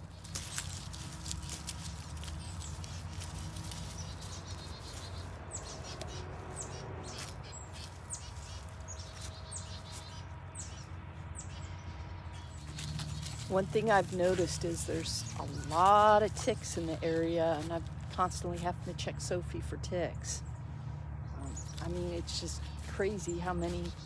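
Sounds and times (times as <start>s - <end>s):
small bird chirping: 0.0s - 13.5s, 21.3s - 24.0s.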